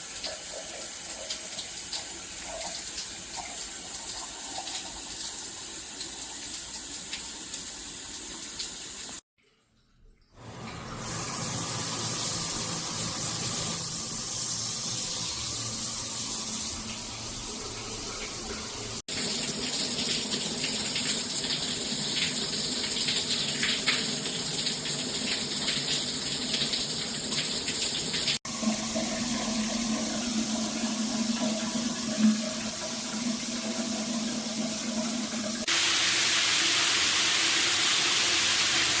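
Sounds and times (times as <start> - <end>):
water spraying from showerhead: 11.0 - 16.9, 35.6 - 39.0.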